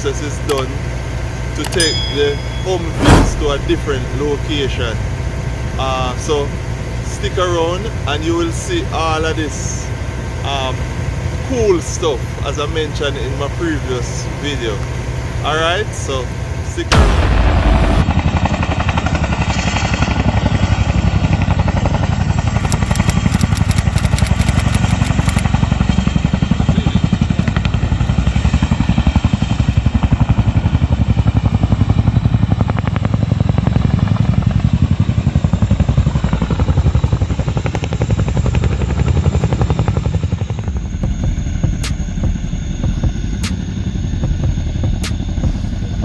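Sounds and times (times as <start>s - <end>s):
helicopter rotor beating: 0.0s - 46.0s
loud rushing noise: 2.7s - 4.9s, 16.9s - 18.1s.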